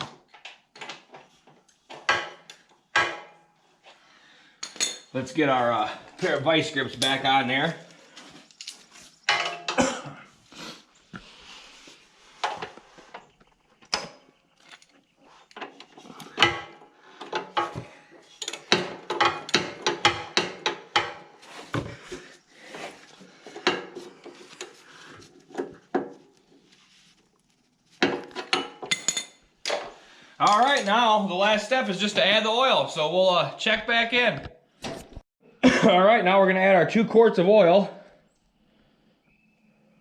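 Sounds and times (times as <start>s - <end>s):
pliers clinking on metal: 18.4s - 20.2s, 28.3s - 29.8s, 30.4s - 31.0s.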